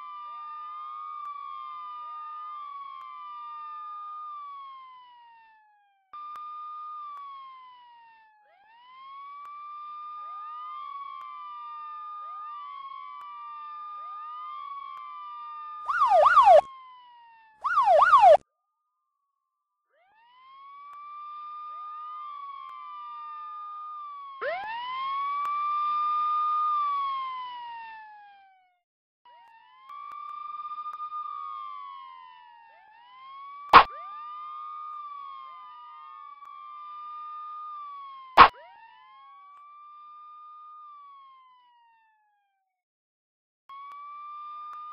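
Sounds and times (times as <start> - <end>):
police siren wailing: 6.7 - 18.4, 20.1 - 28.5, 29.3 - 42.1
siren fast yelp: 15.9 - 16.7, 17.6 - 18.4, 24.4 - 24.9, 33.8 - 34.2, 38.4 - 38.9.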